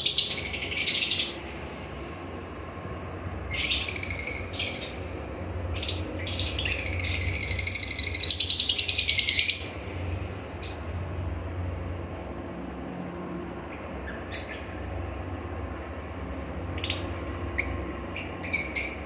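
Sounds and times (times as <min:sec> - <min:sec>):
parrot screeching: 0:03.5 - 0:05.0.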